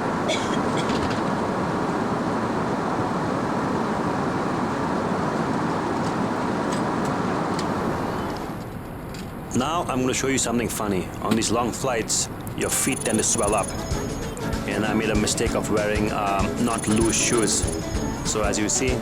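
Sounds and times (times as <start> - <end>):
airplane cabin rushing noise: 0.0 - 9.5
faint clicks: 12.4 - 13.8.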